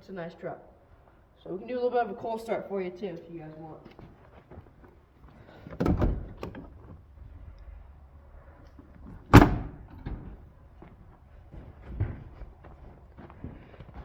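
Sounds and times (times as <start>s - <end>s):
door clunk: 5.7s - 6.9s, 9.0s - 10.4s
door slamming shut: 5.8s - 6.7s, 9.2s - 10.4s.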